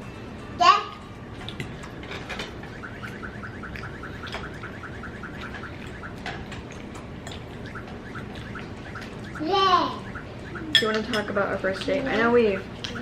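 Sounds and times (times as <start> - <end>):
faint rising chirps: 2.6 - 10.9.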